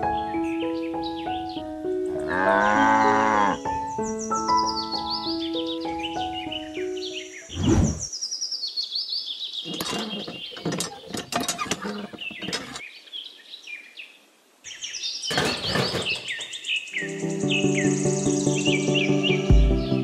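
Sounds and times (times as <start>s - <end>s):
birds chirping: 0.0s - 20.0s
sharp clicks and knocks: 9.7s - 12.8s, 15.3s - 16.6s.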